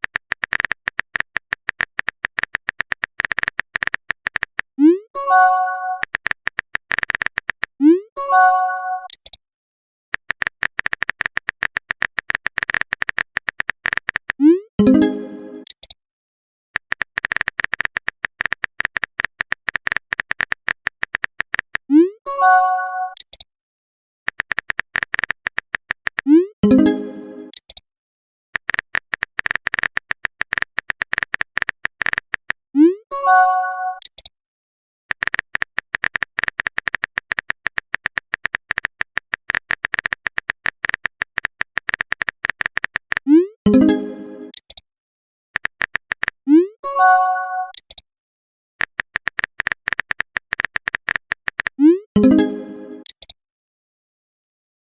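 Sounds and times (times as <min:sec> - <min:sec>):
rapid text blip clicks: 0:00.0 - 0:04.8, 0:05.9 - 0:07.8, 0:10.2 - 0:14.5, 0:16.8 - 0:21.9, 0:24.3 - 0:26.4, 0:28.6 - 0:32.7, 0:35.1 - 0:43.6, 0:44.5 - 0:44.8, 0:45.6 - 0:46.4, 0:47.7 - 0:48.0, 0:48.8 - 0:52.0, 0:53.0 - 0:53.4.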